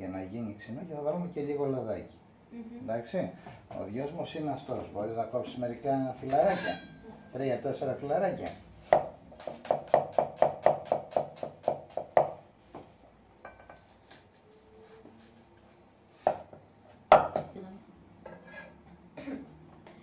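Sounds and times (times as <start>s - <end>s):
knife chopping on wooden board: 8.4s - 12.4s.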